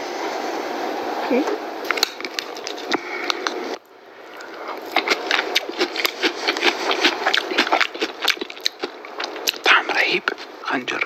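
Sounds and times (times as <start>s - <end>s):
steady hiss: 0.0s - 4.9s, 8.9s - 11.0s
chewing salad crunches: 1.8s - 10.6s
mouth clicks: 1.9s - 11.0s.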